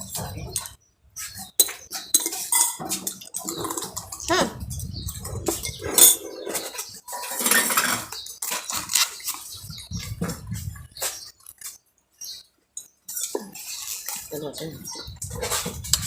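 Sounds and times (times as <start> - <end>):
spoons and dishes clinking: 1.5 - 4.3, 12.8 - 14.3.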